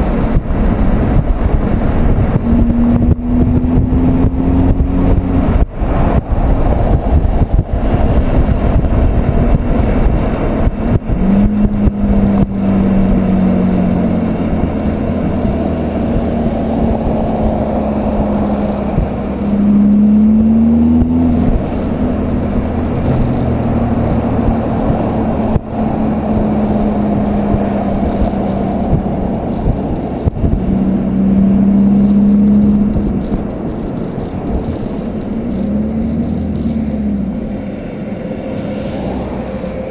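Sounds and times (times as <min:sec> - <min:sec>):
car exhaust drone: 0:00.0 - 0:39.9
road and wind noise: 0:00.0 - 0:39.9.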